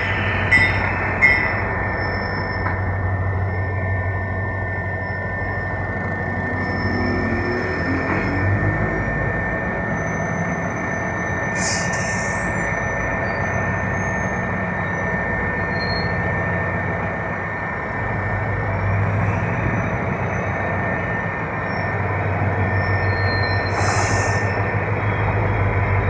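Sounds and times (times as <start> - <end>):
locomotive engine running: 0.0 - 26.0
rumble of moving train: 0.0 - 26.0.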